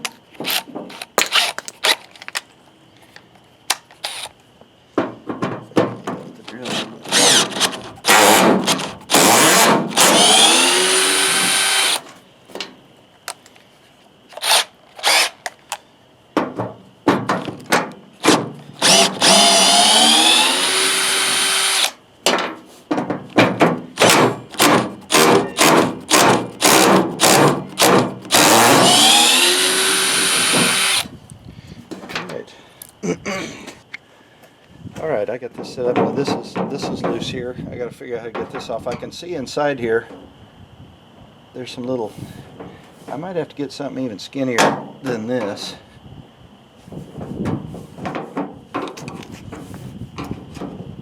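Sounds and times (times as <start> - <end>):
power drill running: 6.7 - 12.0, 14.4 - 15.3, 18.8 - 22.0, 24.0 - 31.1.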